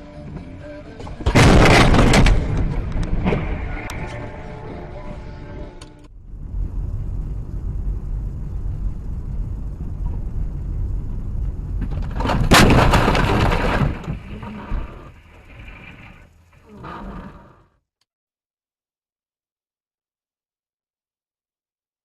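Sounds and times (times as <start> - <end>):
car road rumble: 0.0 - 16.7
car collision: 1.0 - 4.6, 11.8 - 16.3.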